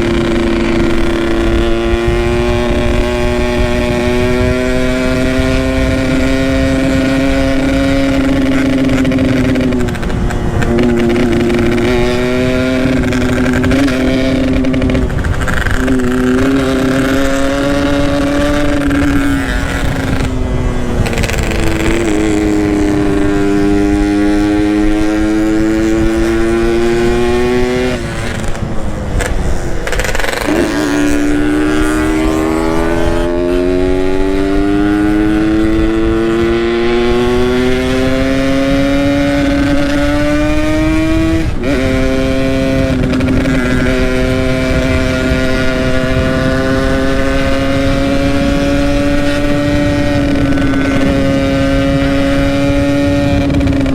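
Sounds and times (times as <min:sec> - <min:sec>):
two-stroke motorcycle engine: 0:00.0 - 0:53.9.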